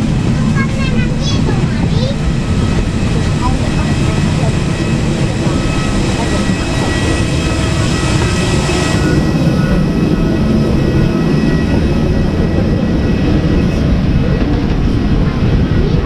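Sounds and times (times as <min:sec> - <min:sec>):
jet engines rumbling in cabin: 0:00.0 - 0:16.0.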